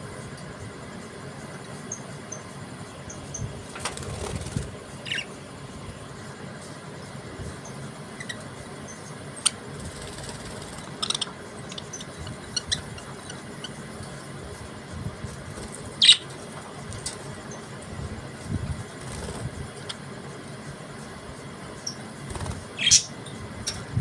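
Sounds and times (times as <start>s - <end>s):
steady background hum: 0.0s - 24.0s
budgerigars chirping: 5.0s - 5.4s, 8.2s - 14.0s, 15.9s - 16.3s, 21.8s - 23.8s.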